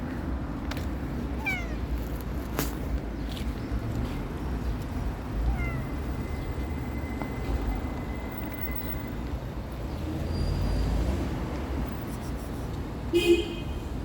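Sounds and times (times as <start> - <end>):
street background rumble: 0.0 - 14.0
cat meowing: 1.4 - 1.9, 5.4 - 6.0.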